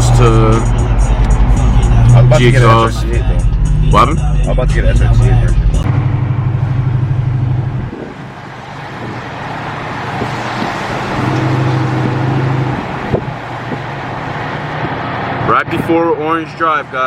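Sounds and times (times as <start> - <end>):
road and traffic noise: 0.0 - 17.0
low hum: 5.7 - 8.4.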